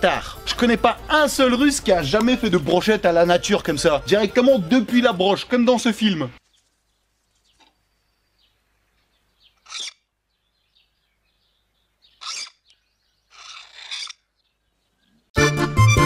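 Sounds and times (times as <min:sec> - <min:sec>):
faint birds chirping: 0:06.4 - 0:15.3.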